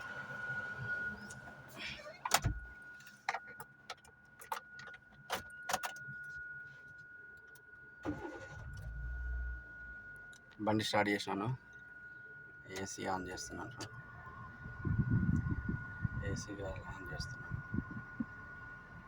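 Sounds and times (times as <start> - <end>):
steady high tone: 6.0 - 19.0
car engine cranking and rumbling: 8.0 - 9.9.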